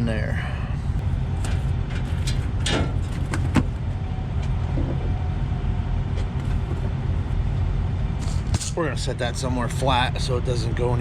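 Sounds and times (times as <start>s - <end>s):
metal knocks and clanks: 1.4s - 3.7s.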